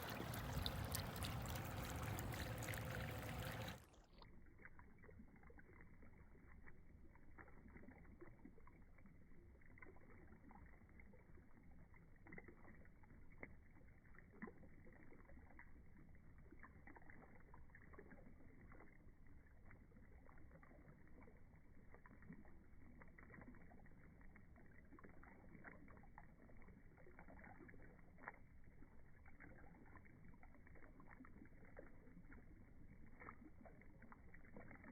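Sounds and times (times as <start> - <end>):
fountain water splashing: 0.0 - 3.9.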